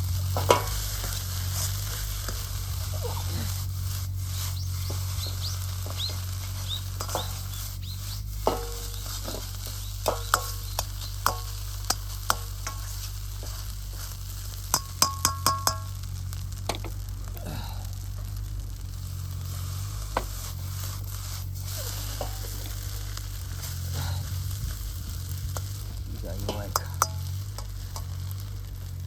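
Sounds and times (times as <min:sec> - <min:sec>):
rice sizzling in a wok: 0:00.0 - 0:29.0
metal ladle scraping and clanking: 0:00.3 - 0:03.7, 0:06.4 - 0:14.0, 0:20.2 - 0:22.8, 0:26.4 - 0:28.3.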